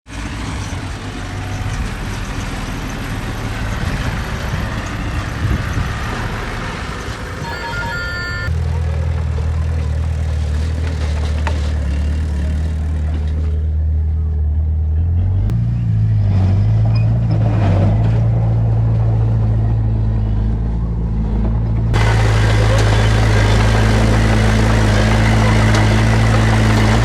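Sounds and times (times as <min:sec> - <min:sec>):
heavy diesel machinery engine: 0:00.1 - 0:27.0
high-pitched squeal: 0:07.4 - 0:08.5.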